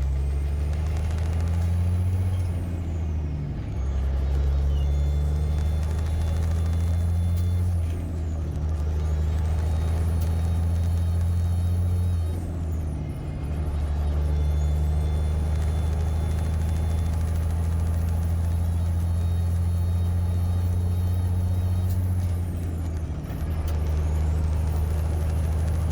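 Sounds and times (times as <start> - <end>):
truck diesel engine running: 0.0 - 25.9.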